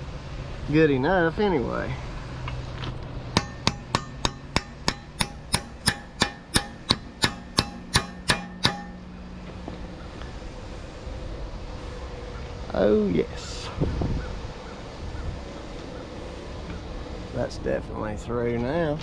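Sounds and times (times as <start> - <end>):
hammer striking metal pin: 3.4 - 9.0.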